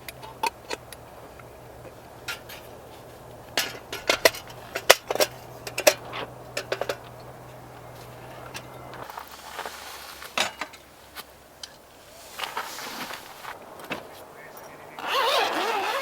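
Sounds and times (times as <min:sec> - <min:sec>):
dishes and utensils clinking: 0:03.6 - 0:07.6.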